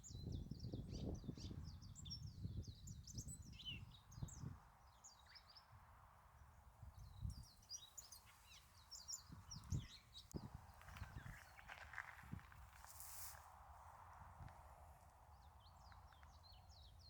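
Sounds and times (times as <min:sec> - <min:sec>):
small birds chirping: 0:06.4 - 0:13.4, 0:15.0 - 0:17.0.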